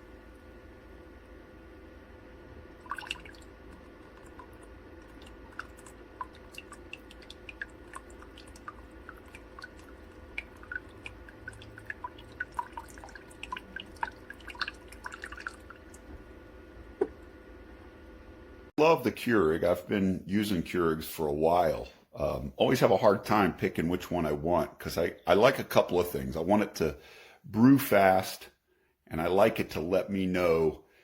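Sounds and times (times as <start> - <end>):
faint steady hum: 0.0 - 31.0
liquid dripping: 2.7 - 16.2.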